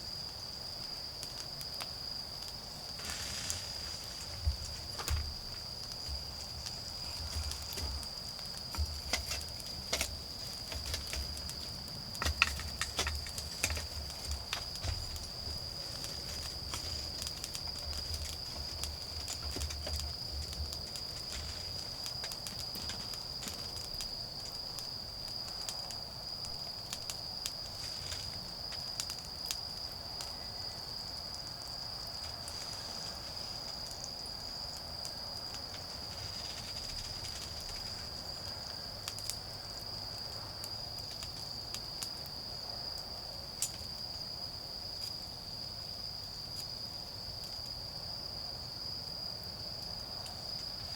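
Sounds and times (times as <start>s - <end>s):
crickets trilling: 0.0s - 50.9s
wood fire crackling: 0.1s - 44.3s
fire popping: 0.3s - 39.9s.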